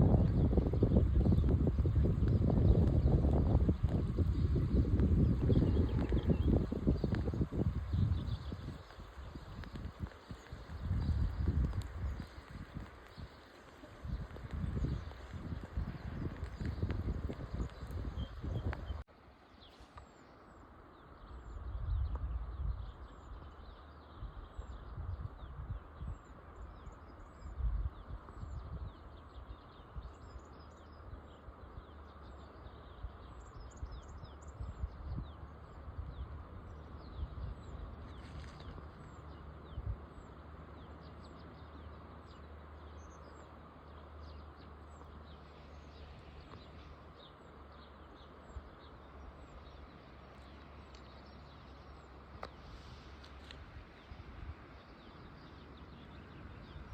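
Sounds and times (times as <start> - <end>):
low rumbling gusts: 0.0 - 19.1, 20.8 - 56.9
small birds chirping: 0.0 - 56.9
steady hiss: 51.8 - 55.9.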